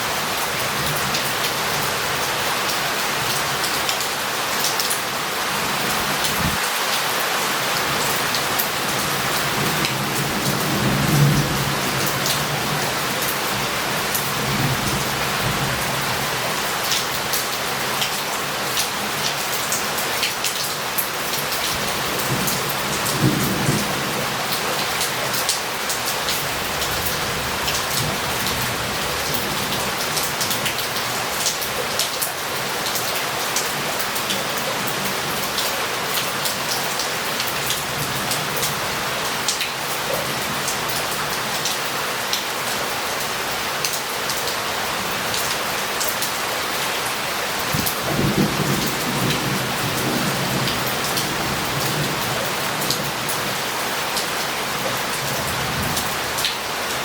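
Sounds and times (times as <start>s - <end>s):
heavy rain on street: 0.0s - 57.0s
thunder rumbles: 9.5s - 12.8s.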